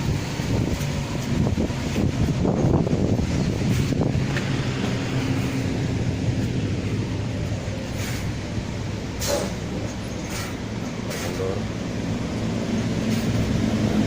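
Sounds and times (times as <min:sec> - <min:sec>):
diesel bus engine droning: 0:00.0 - 0:14.0
brief hisses: 0:09.2 - 0:09.6.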